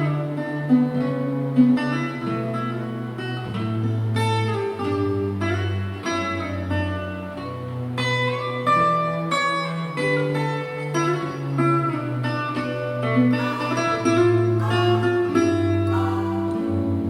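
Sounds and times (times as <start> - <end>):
instrumental guitar music: 0.0 - 17.0.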